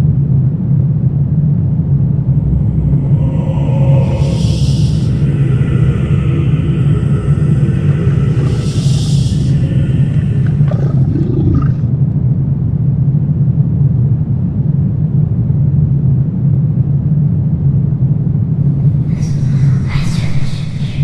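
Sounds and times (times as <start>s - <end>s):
low rumbling drone: 0.0s - 14.9s, 17.7s - 21.0s
high wavering sound: 2.1s - 10.5s.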